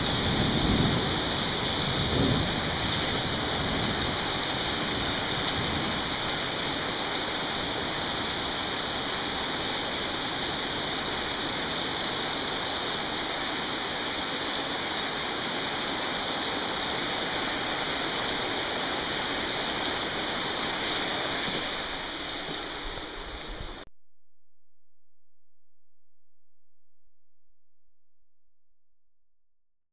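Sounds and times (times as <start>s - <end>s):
heavy rain pouring: 0.0s - 23.8s.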